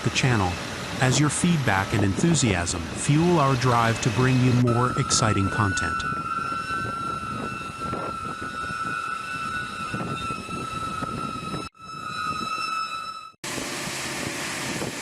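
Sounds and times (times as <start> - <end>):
vehicle noise: 0.0 - 11.8
high-pitched steady tone: 1.0 - 13.4.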